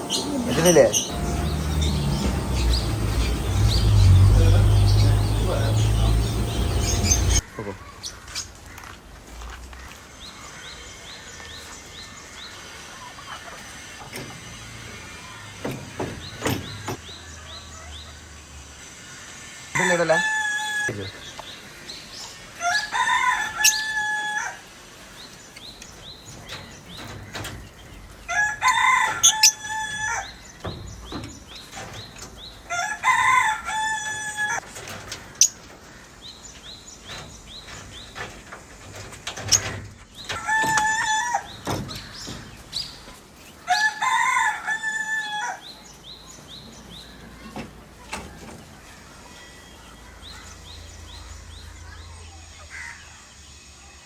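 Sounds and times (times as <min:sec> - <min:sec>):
rooster crowing: 0:00.0 - 0:07.4, 0:19.8 - 0:21.0, 0:22.6 - 0:24.7, 0:28.3 - 0:30.4, 0:32.7 - 0:34.6, 0:40.4 - 0:41.5, 0:43.6 - 0:45.7.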